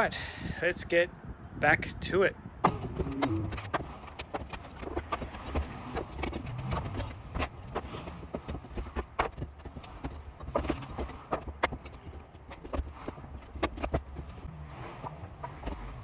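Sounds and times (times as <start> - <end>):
hollow knocks on timber: 2.6 - 14.4.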